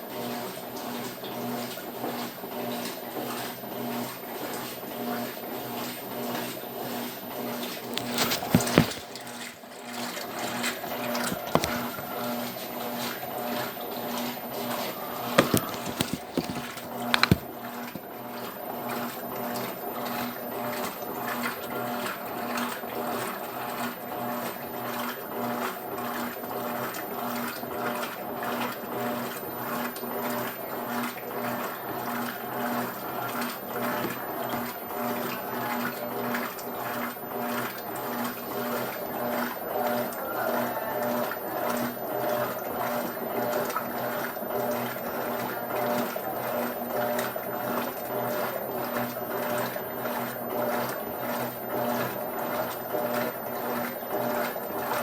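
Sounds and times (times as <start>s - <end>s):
washing machine running: 8.6s - 16.0s, 18.1s - 55.0s.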